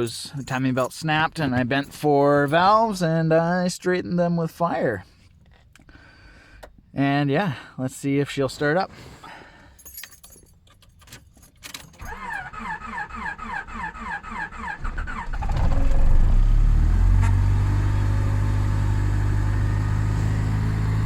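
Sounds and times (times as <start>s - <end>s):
starter cranking engine: 12.0s - 16.4s.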